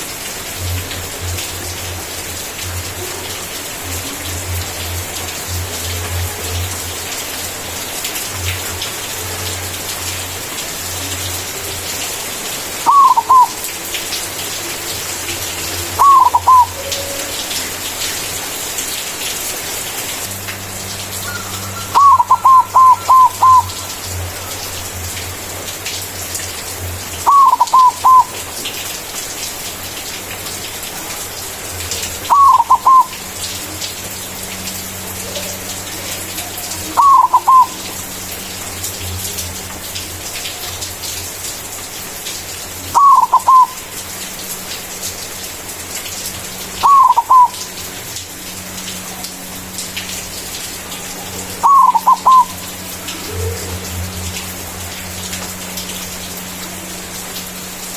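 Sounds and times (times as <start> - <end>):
dove cooing: 12.8 - 14.8, 15.7 - 17.4, 21.2 - 24.6, 27.2 - 28.3, 32.2 - 33.2, 35.2 - 38.0, 42.9 - 43.8, 46.8 - 47.7, 51.1 - 54.4.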